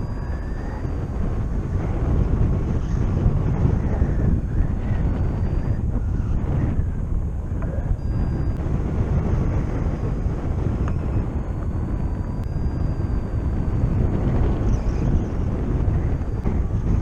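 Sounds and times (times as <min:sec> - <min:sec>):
faint thin high tone: 0:00.0 - 0:01.1, 0:07.7 - 0:08.6, 0:10.9 - 0:15.4
wind buffeting microphone: 0:00.0 - 0:17.0.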